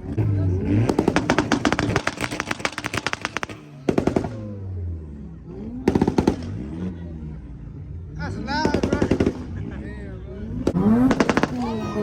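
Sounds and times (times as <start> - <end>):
car engine revving: 0.0 - 12.0
exhaust pops and bangs: 0.6 - 4.6, 5.8 - 6.7, 8.5 - 9.7, 10.6 - 12.0.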